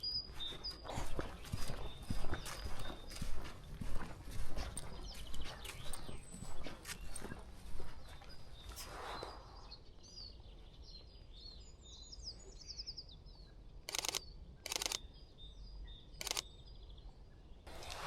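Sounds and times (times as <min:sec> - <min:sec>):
songbird chirping and trilling: 0:00.0 - 0:18.0
camera shutter clicks: 0:13.9 - 0:15.0, 0:16.2 - 0:16.4.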